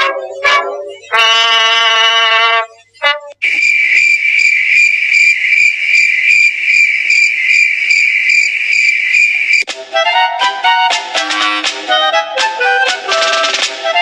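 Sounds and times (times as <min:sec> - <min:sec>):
cricket chirping: 0:03.4 - 0:09.7.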